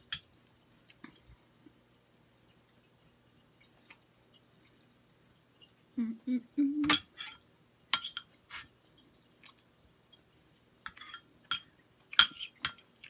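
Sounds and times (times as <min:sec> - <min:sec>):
person chewing food: 0:08.0 - 0:10.2.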